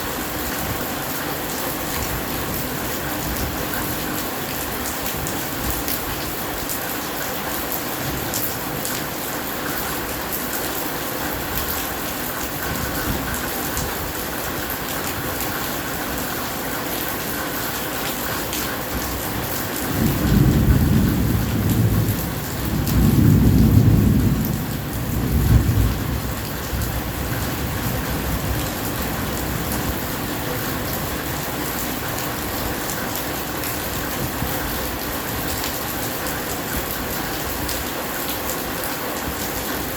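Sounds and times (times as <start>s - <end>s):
heavy rain: 0.0s - 39.9s
thunder rumbling: 19.4s - 31.8s.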